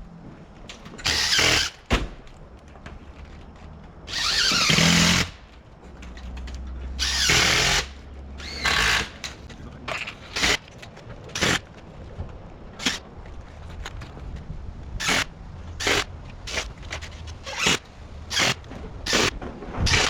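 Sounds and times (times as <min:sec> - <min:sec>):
power drill bursts: 0:01.0 - 0:01.8, 0:04.1 - 0:05.4, 0:07.0 - 0:09.4, 0:10.3 - 0:10.6, 0:15.0 - 0:16.7, 0:17.4 - 0:19.3.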